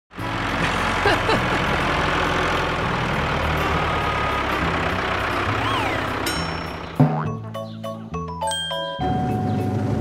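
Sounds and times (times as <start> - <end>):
cartoon tractor engine running: 0.1 - 10.0
rising and falling whistle tone: 5.6 - 6.1.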